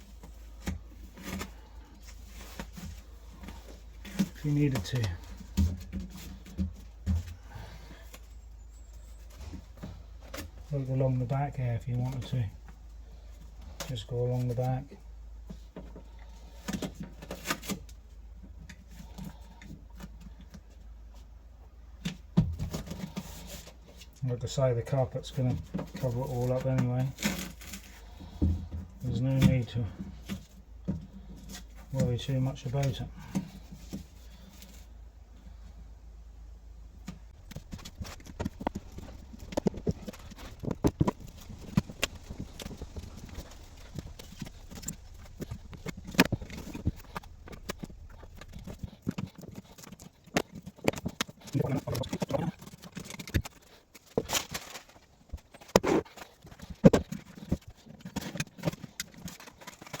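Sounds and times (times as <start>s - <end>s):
padding crackling and tapping: 36.9s - 60.0s
light rustling and ticking: 37.0s - 60.0s.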